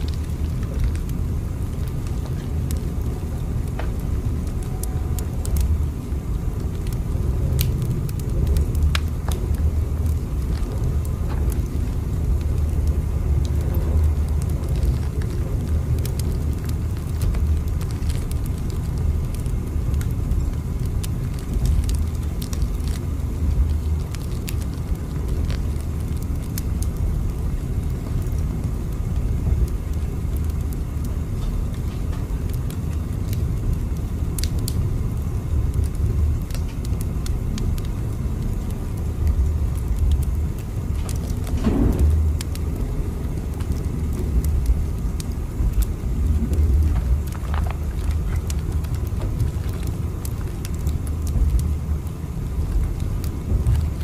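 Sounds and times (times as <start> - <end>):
moving train rumbling: 0.0 - 26.8, 38.9 - 51.9
faint clicks and crackles: 0.0 - 54.0.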